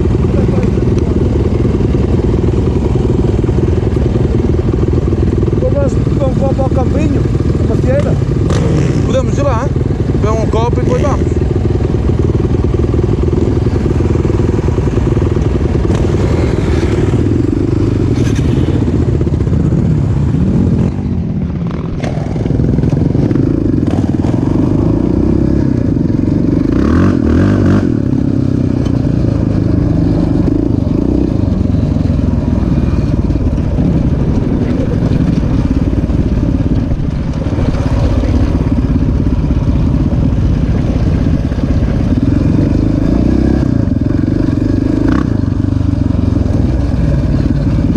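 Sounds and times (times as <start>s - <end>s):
single-cylinder engine revving: 0.0s - 20.9s, 21.8s - 47.9s.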